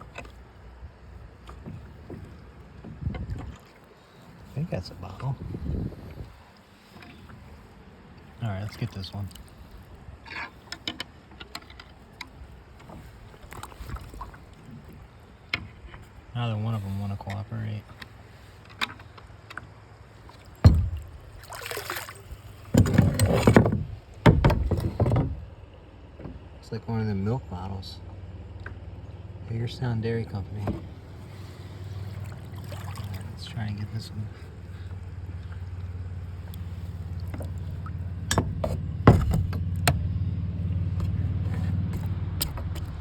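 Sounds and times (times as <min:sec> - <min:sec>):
water splashing and sloshing: 0:00.0 - 0:26.6, 0:30.2 - 0:43.0
hollow thump: 0:20.6 - 0:21.4, 0:22.7 - 0:25.5, 0:30.6 - 0:30.9, 0:38.2 - 0:40.0.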